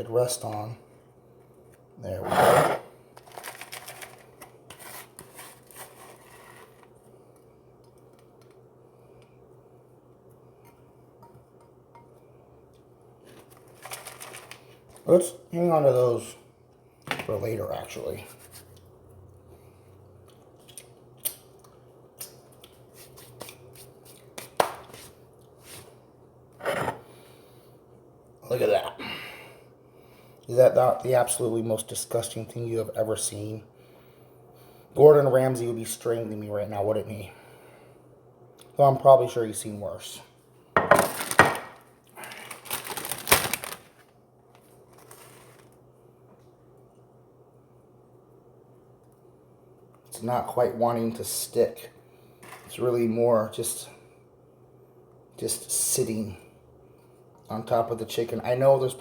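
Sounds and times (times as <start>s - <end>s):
faint hum: 0.0s - 59.0s
crunchy snacks crackling: 3.2s - 4.4s, 41.1s - 45.8s.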